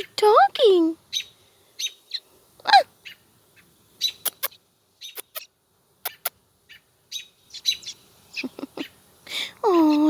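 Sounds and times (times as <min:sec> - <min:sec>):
baby bird chirping: 0:04.0 - 0:09.0.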